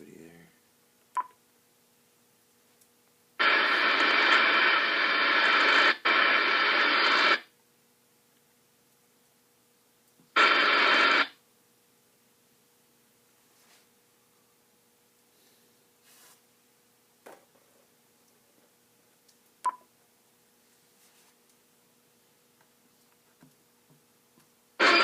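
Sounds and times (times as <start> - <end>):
radio static hiss: 3.4 - 7.5, 10.3 - 11.4, 24.8 - 25.0.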